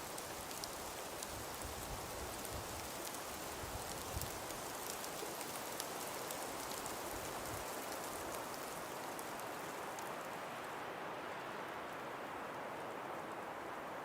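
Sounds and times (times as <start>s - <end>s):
snow grains ticking: 0.0s - 10.4s
wind and falling snow hiss: 0.0s - 14.0s.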